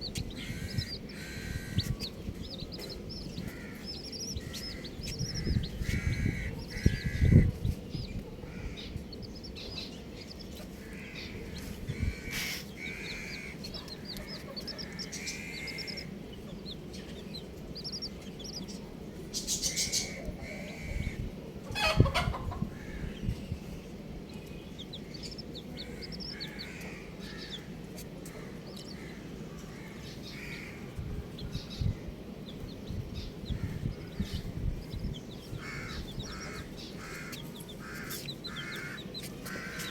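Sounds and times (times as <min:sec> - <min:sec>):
chicks peeping: 0:00.0 - 0:39.9
clucking calls: 0:11.9 - 0:18.7, 0:21.7 - 0:22.8.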